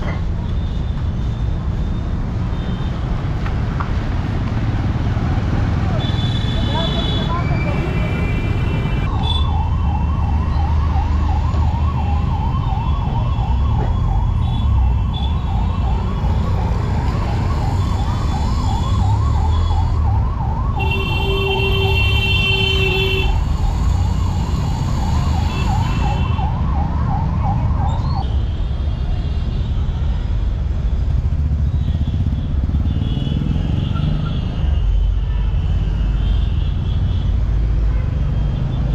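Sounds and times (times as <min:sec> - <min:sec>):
street traffic rumble: 0:00.0 - 0:38.9
emergency vehicle siren yelping: 0:09.0 - 0:22.0, 0:23.3 - 0:28.2.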